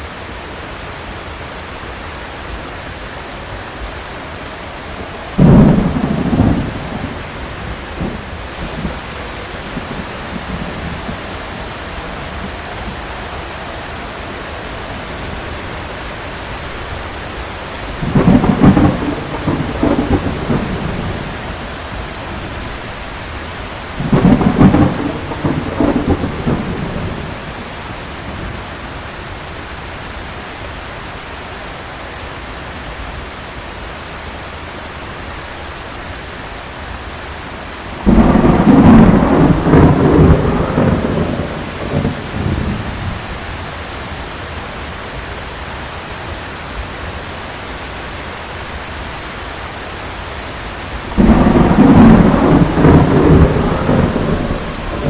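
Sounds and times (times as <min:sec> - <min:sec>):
heavy rain falling: 0:00.0 - 0:55.0
rolling thunderclaps: 0:04.8 - 0:28.8, 0:37.7 - 0:43.6, 0:50.7 - 0:55.0.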